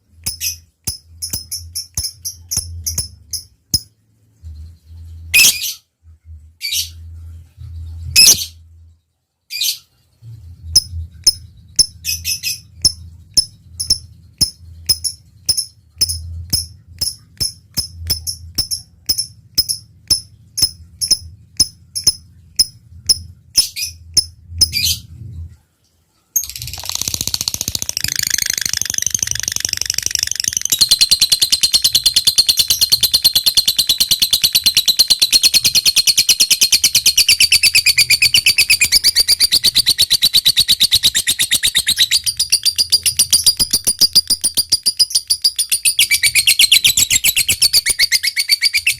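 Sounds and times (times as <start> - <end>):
lovebird chirping: 0.2 - 5.8, 6.6 - 8.6, 9.5 - 25.1, 26.4 - 48.9
lovebird chattering trill: 26.4 - 48.9.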